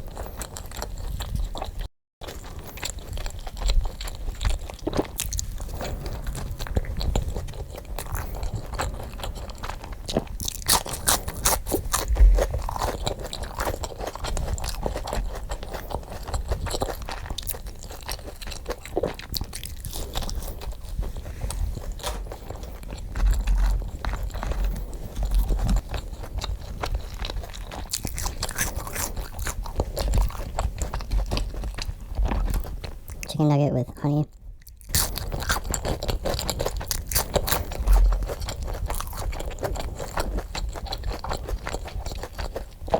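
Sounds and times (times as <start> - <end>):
crunchy chewing: 0.0 - 33.3, 34.6 - 42.9
low thumps: 4.4 - 10.8.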